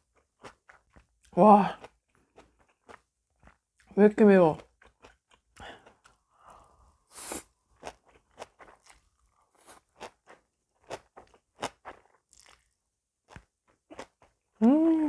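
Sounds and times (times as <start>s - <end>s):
chewing crunchy food: 0.0s - 14.7s
hissing breath: 6.4s - 7.5s.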